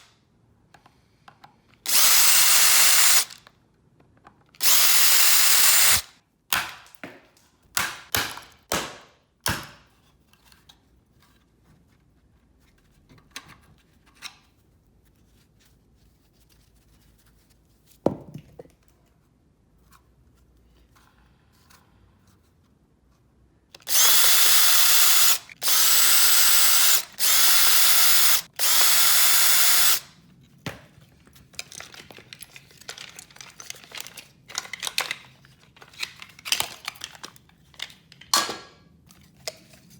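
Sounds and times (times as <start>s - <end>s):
power drill whining: 1.9s - 3.4s, 4.6s - 6.1s, 23.8s - 30.1s
handling of parts: 30.2s - 39.9s.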